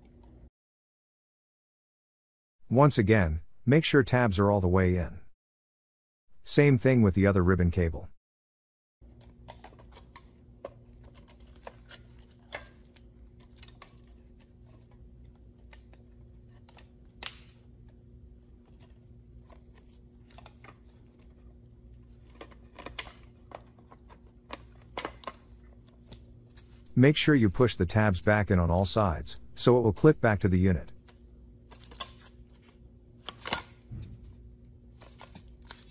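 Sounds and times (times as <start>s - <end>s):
faint electrical hum: 9.0s - 35.9s.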